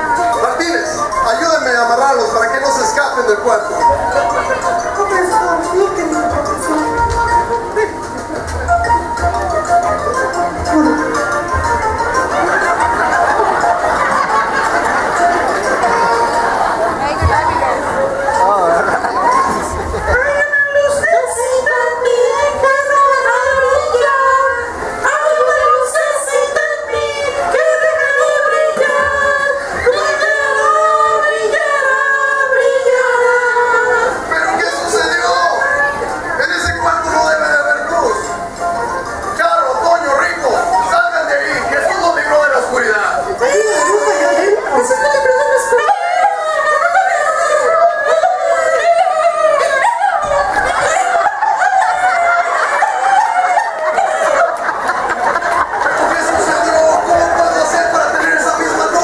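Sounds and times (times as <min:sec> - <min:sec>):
high voices singing held notes: 0:02.7 - 0:36.9, 0:43.2 - 0:59.0
people laughing together: 0:07.7 - 0:09.6, 0:10.6 - 0:21.6, 0:42.8 - 0:59.0.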